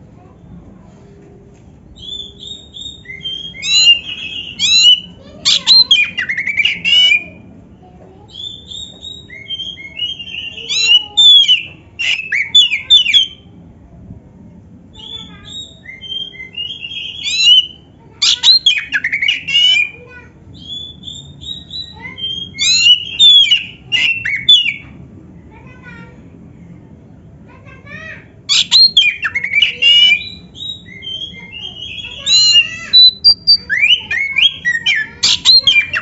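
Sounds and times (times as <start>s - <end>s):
faint steady hum: 0.0s - 36.0s
bird singing whistles and trills: 2.0s - 7.4s, 8.3s - 13.4s, 15.0s - 20.0s, 20.6s - 24.8s, 28.5s - 36.0s.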